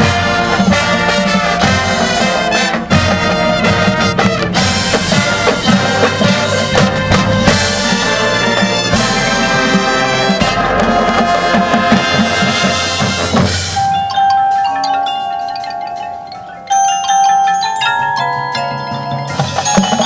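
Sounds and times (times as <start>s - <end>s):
brass section sustaining chords: 0.0s - 13.9s
sharp drum hits: 0.0s - 14.2s.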